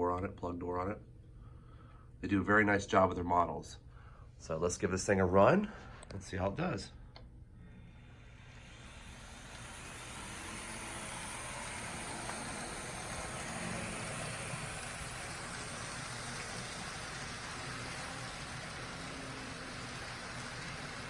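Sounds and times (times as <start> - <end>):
model train running: 8.3 - 21.0.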